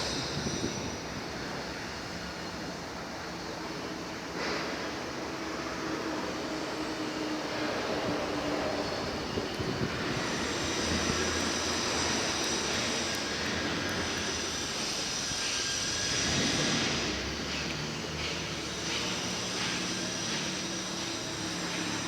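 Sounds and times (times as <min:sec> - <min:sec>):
compactor truck running: 0:07.5 - 0:22.0
high steady whine: 0:07.5 - 0:22.0.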